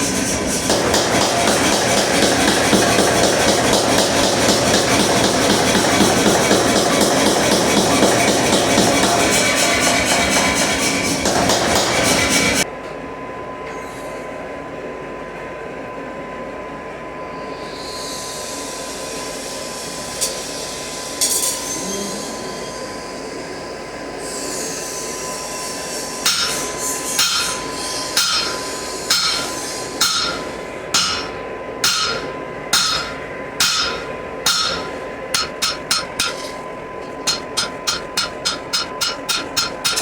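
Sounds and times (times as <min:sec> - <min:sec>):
gas forge rushing: 0:00.0 - 0:12.7, 0:17.3 - 0:40.0
hammer striking metal on anvil: 0:00.6 - 0:12.6, 0:26.2 - 0:40.0.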